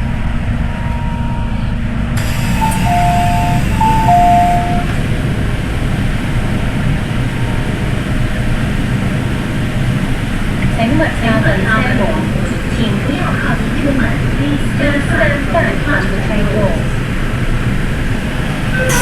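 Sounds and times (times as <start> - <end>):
electric train rumble and hiss: 0.0 - 19.0
two-note chime: 2.6 - 4.9, 18.8 - 19.0.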